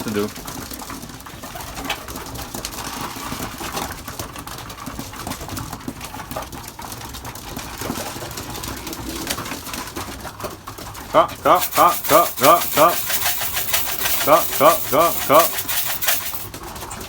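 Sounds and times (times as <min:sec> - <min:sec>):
short clicks and rustles: 0:11.5 - 0:16.5.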